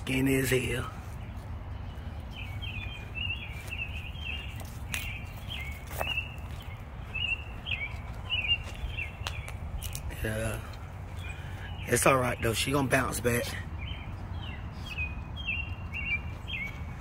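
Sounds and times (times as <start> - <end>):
songbird chirping: 0.0 - 17.0
footsteps on grass and dirt: 0.2 - 11.4.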